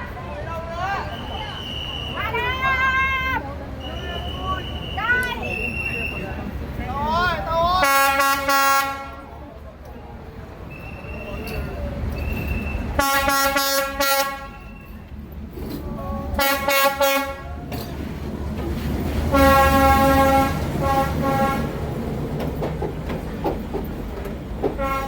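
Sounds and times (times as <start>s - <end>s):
train rumbling past: 0.0s - 25.0s
train horn blasts: 7.8s - 9.4s, 12.9s - 14.9s, 16.4s - 17.6s, 19.3s - 21.8s, 24.8s - 25.0s.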